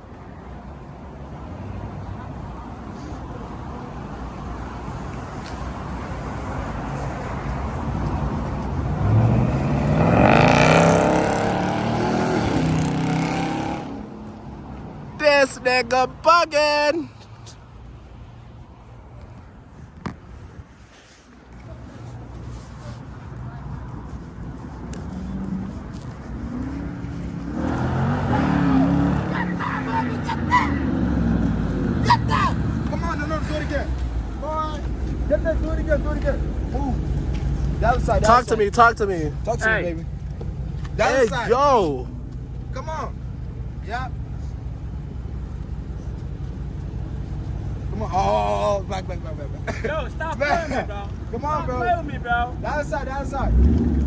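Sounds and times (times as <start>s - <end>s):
car engine accelerating: 1.4s - 14.9s, 24.9s - 54.0s.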